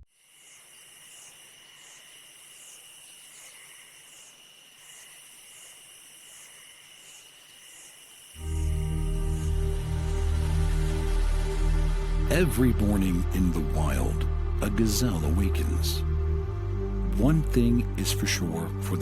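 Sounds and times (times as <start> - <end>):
insects chirring: 0.0 - 12.3
thin continuous high tone: 0.1 - 19.0
music: 8.4 - 19.0.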